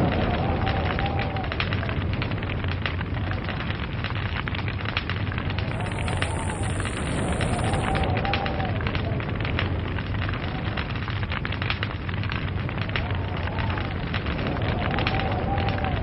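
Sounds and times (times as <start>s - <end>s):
log fire crackling: 0.0s - 16.0s.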